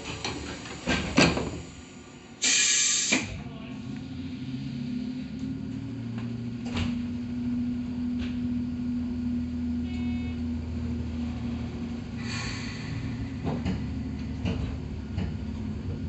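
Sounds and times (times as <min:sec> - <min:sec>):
electric train hum: 0:00.0 - 0:16.0
brief high beep: 0:09.9 - 0:10.4.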